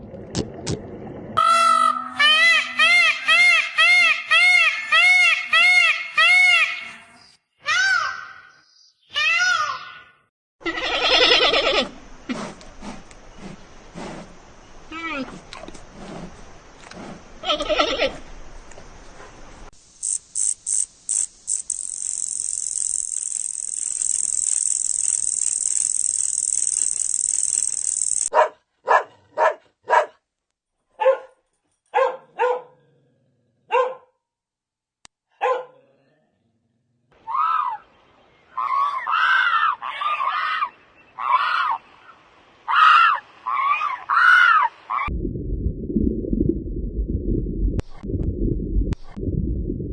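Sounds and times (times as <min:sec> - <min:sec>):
steady high hiss: 0:19.6 - 0:28.3
bark-like animal calls: 0:28.3 - 0:30.2, 0:32.0 - 0:32.8, 0:33.7 - 0:34.1, 0:35.3 - 0:35.8.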